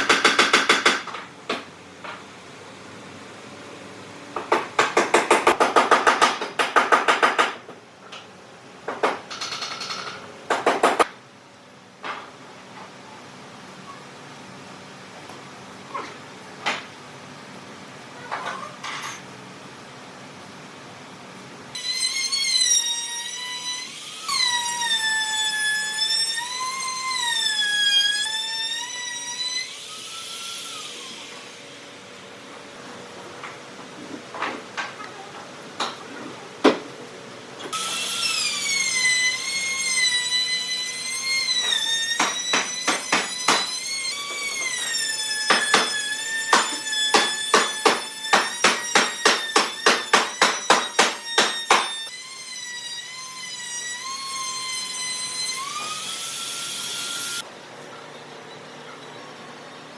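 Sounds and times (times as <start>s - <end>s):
power tool cutting wood: 21.8s - 31.8s, 37.7s - 57.5s.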